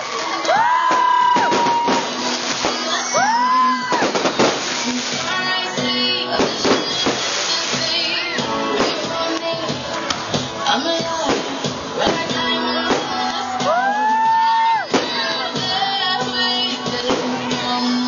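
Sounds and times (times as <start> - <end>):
fireworks bangs and crackles: 0.0 - 14.2, 14.9 - 17.8
music: 0.0 - 18.0
whistling fireworks: 0.6 - 5.5, 6.4 - 9.0.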